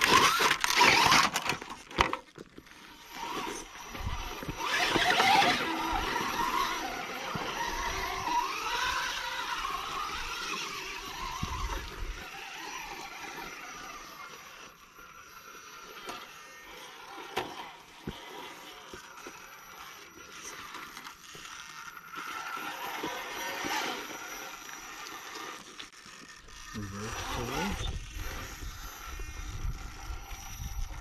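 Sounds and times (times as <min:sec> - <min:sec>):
electric motor and gears whining: 0:00.0 - 0:31.0
wind rumbling on microphone: 0:27.6 - 0:31.0.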